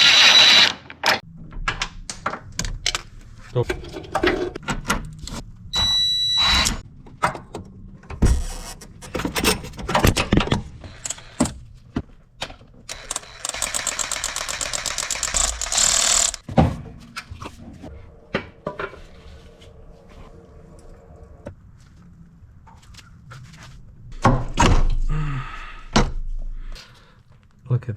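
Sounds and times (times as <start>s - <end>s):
tool whine: 0.0s - 1.2s, 5.8s - 6.8s, 12.9s - 16.4s
fast even rattle: 13.0s - 16.4s.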